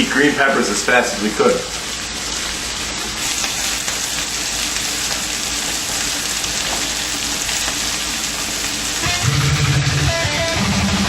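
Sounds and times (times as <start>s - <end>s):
peppers sizzling in frying pan: 0.0s - 10.6s
electric guitar music: 3.4s - 11.0s.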